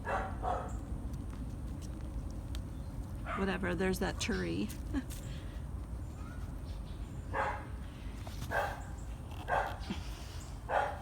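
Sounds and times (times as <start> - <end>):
dog barking: 0.0 - 0.7, 7.3 - 7.7, 8.5 - 8.8, 9.5 - 9.8, 10.7 - 11.0.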